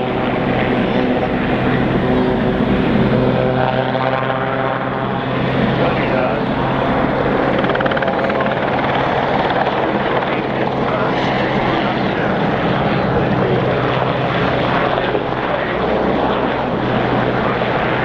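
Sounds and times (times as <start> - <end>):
helicopter engines and rotors: 0.0 - 18.0.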